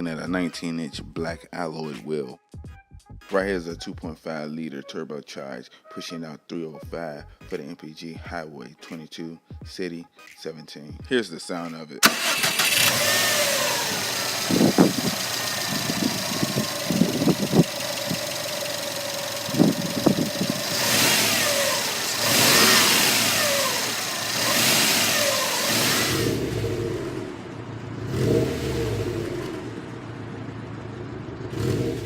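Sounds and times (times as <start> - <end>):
car engine idling and revving: 12.0 - 32.0.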